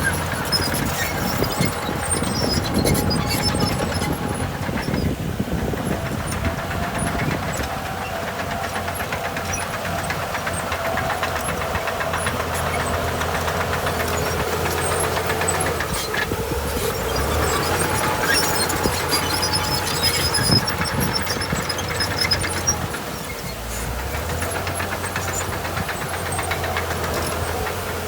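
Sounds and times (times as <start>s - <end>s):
heavy diesel engines droning: 0.0s - 28.0s.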